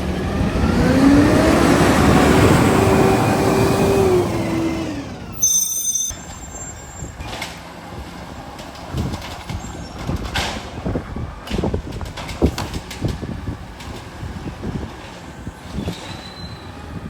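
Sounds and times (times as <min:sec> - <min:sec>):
low engine rumble: 0:00.0 - 0:05.4.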